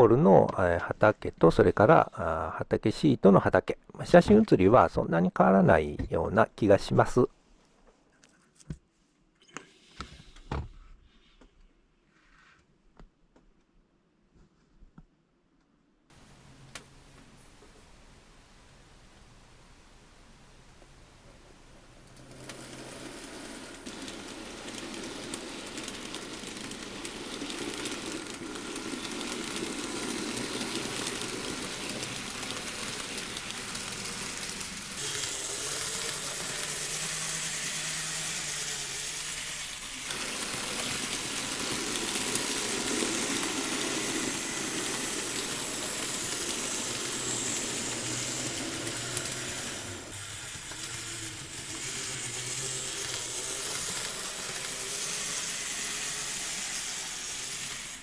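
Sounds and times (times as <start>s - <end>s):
wheel and rail noise: 16.1s - 58.0s
model train motor hum: 21.7s - 58.0s.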